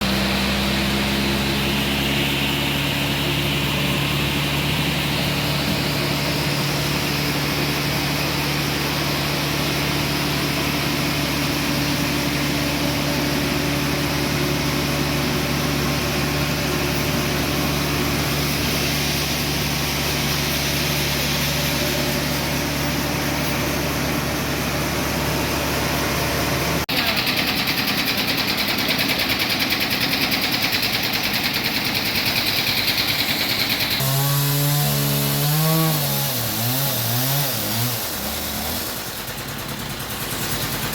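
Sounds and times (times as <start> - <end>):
band sawmill running: 0.0 - 40.9
fast even machine rattle: 26.9 - 34.0, 38.8 - 40.9.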